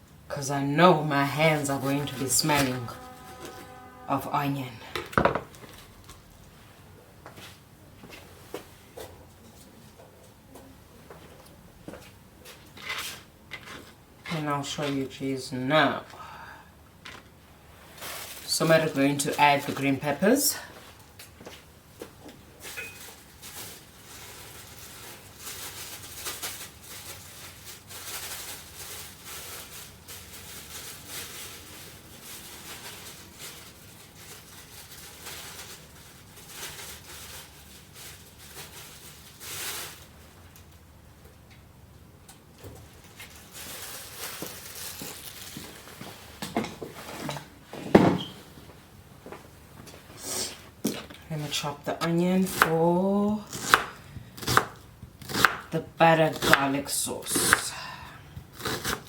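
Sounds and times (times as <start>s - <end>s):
food packaging rustling and crinkling: 4.9s - 15.2s, 17.0s - 41.5s, 42.3s - 55.7s.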